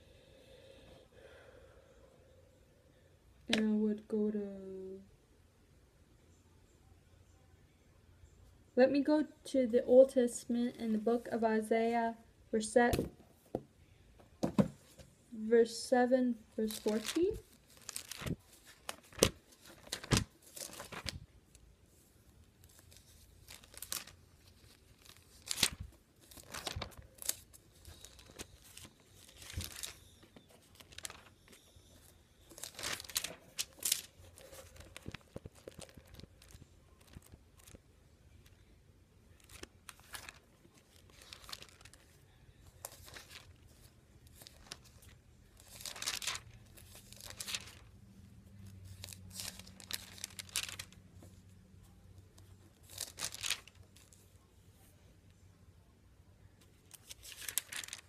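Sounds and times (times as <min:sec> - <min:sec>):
pages rustling as turned: 0:16.6 - 0:21.3, 0:22.6 - 0:37.8, 0:39.3 - 0:48.0, 0:48.6 - 0:51.4, 0:52.4 - 0:54.3, 0:56.9 - 0:58.0.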